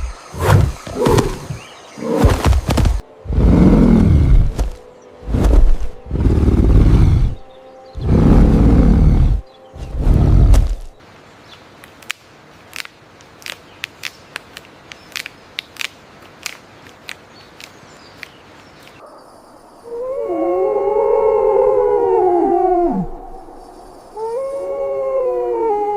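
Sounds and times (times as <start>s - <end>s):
large animal roaring: 3.2s - 4.8s, 5.4s - 10.9s, 19.8s - 23.5s
quiet sharp clicks or chirps: 11.8s - 19.0s.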